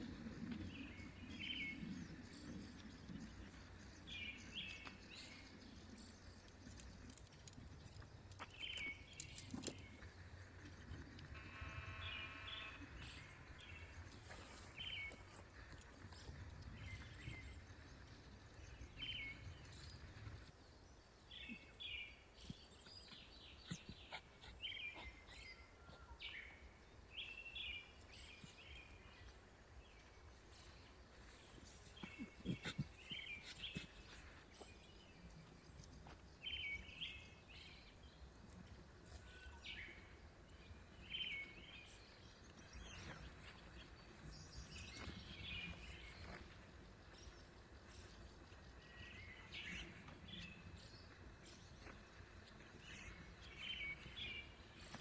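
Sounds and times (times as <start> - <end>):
low wind rumble: 0.0 - 21.2
birds chirping: 0.2 - 55.0.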